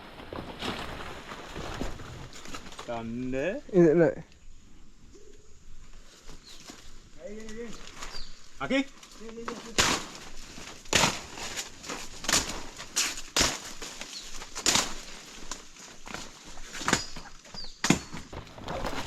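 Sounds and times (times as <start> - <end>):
footsteps crunching through undergrowth: 0.0 - 3.6, 5.8 - 19.0.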